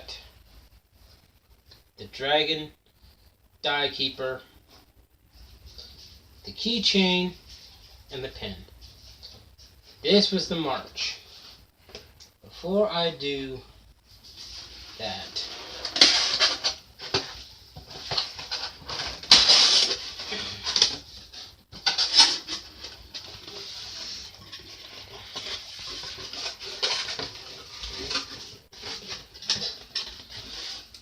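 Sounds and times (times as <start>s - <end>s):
cardboard rustling and scraping: 14.2s - 31.0s.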